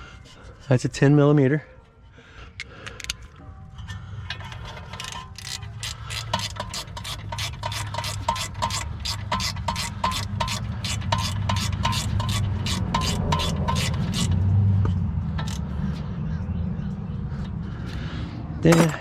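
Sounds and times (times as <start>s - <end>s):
ratchet wrench clicking: 4.4s - 14.4s, 15.4s - 15.7s.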